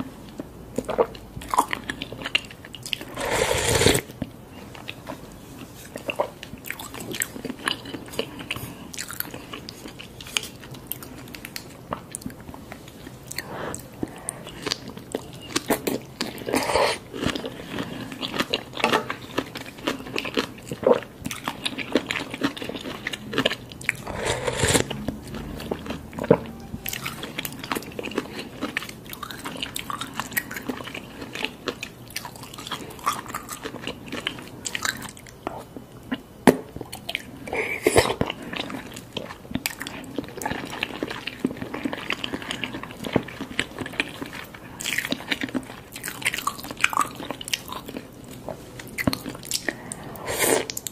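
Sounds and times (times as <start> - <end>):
person chewing noodles: 0.3 - 4.1, 4.7 - 50.9.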